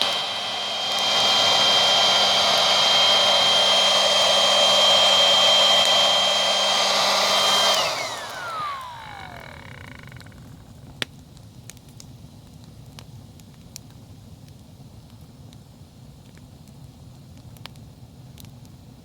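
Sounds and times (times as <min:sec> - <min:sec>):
electric air pump whining: 0:00.0 - 0:11.0
campfire crackling and popping: 0:10.4 - 0:18.8.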